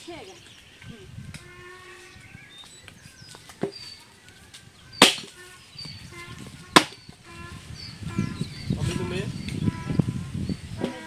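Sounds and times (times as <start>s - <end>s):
blade chopping firewood: 5.0s - 5.4s, 6.7s - 7.0s.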